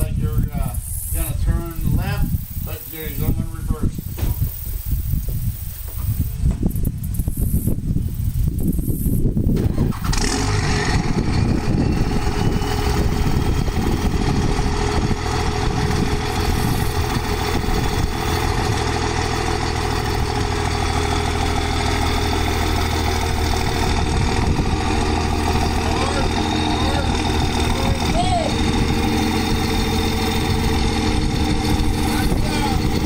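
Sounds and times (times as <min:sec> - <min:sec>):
truck engine idling: 0:09.5 - 0:33.0.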